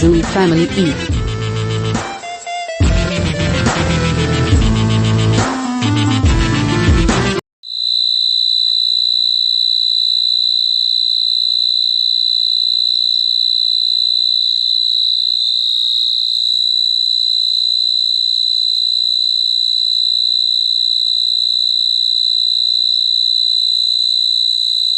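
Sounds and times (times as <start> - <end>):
cricket chirping: 7.6 - 24.9.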